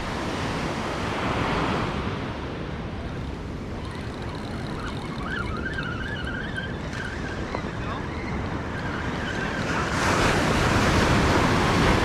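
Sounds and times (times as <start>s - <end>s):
ocean surf: 0.0s - 12.0s
wind buffeting microphone: 0.0s - 12.0s
wavering high-pitched tone: 3.1s - 9.5s.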